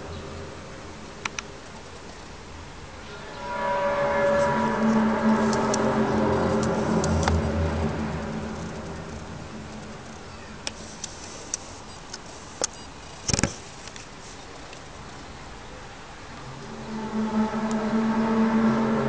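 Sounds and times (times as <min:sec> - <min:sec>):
low droning hum: 0:02.6 - 0:11.0, 0:15.7 - 0:19.0
faint hiss: 0:07.7 - 0:18.2
sharp ticks and clicks: 0:08.1 - 0:14.0.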